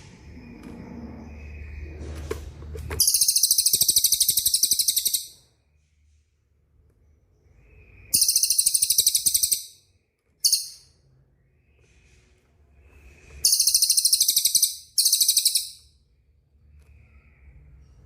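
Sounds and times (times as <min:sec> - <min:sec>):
songbird trilling: 0:03.0 - 0:05.4, 0:07.6 - 0:09.8, 0:10.4 - 0:10.9, 0:13.4 - 0:15.8.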